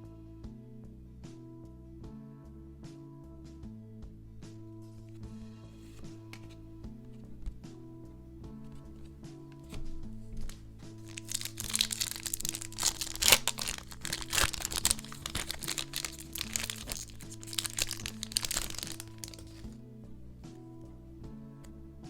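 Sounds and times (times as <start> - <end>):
background music: 0.0 - 22.0
packaging crinkling: 10.5 - 19.7.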